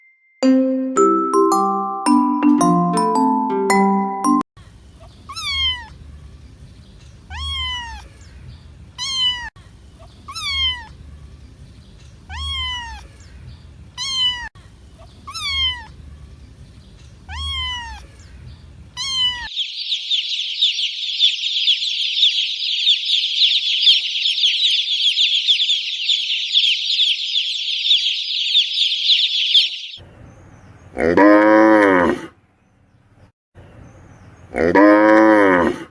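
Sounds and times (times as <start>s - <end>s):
small birds chirping: 4.6s - 31.1s, 32.5s - 34.7s
cat meowing: 5.3s - 5.9s, 7.3s - 8.1s, 9.0s - 9.5s, 10.3s - 11.0s, 12.3s - 13.1s, 14.0s - 14.5s, 15.3s - 15.9s, 17.3s - 18.2s, 19.0s - 19.5s
cow mooing: 31.0s - 32.2s, 34.6s - 35.8s.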